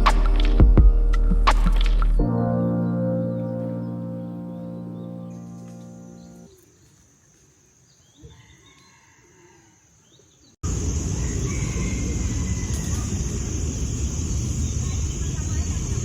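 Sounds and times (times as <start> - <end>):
background music: 0.0 - 6.5.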